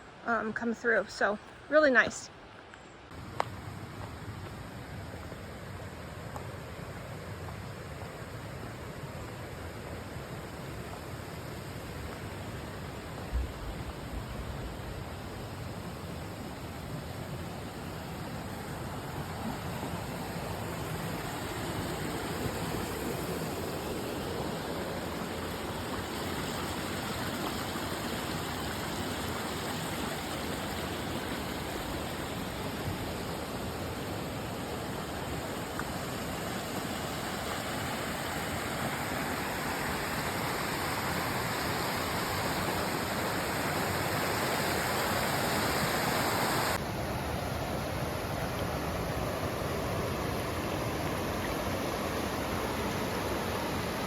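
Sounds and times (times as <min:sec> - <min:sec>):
creek rushing over rocks: 0:00.0 - 0:54.0.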